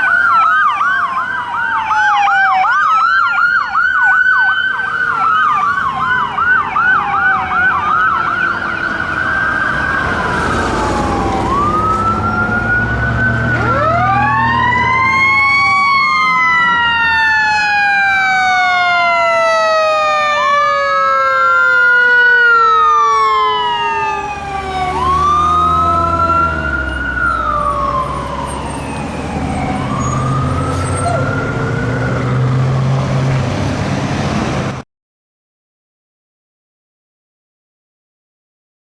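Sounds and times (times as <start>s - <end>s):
electronic siren yelp and wail: 0.0s - 32.6s
heavy truck engine rumble: 5.0s - 17.0s, 22.5s - 34.8s.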